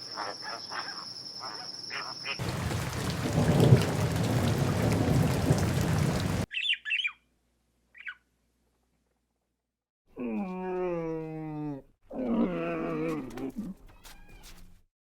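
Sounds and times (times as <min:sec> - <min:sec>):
heavy rain: 0:02.4 - 0:06.5
low thunder rumbling: 0:02.4 - 0:06.5
bird squawks: 0:06.5 - 0:07.2, 0:07.9 - 0:08.2.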